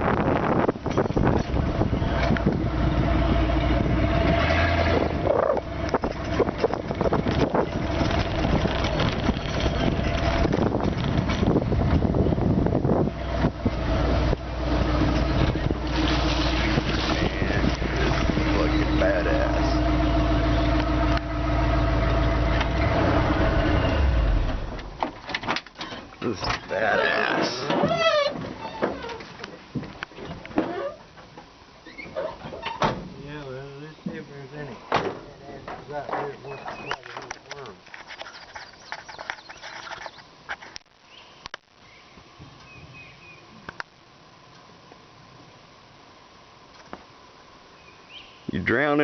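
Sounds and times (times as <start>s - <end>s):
wind buffeting microphone: 0.0s - 24.2s
passing vehicle rumble: 1.5s - 25.0s.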